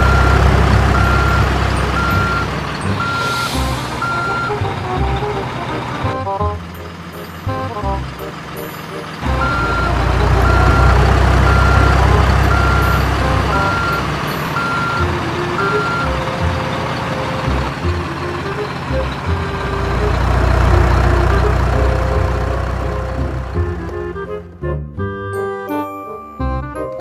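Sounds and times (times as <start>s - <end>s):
reversing alarm beeping: 0.0s - 4.7s, 9.2s - 20.4s
truck engine rumble: 0.0s - 25.2s.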